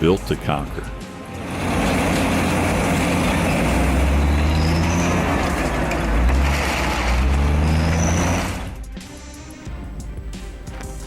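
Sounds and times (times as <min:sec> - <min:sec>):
diesel engine under load: 0:00.0 - 0:09.5
mechanical clatter: 0:01.3 - 0:08.8.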